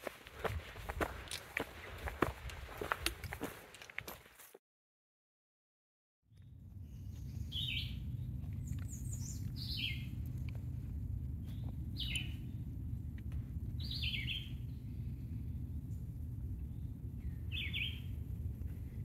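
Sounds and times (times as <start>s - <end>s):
songbird singing: 6.3s - 10.5s, 11.4s - 12.8s, 13.7s - 15.1s, 15.7s - 18.2s.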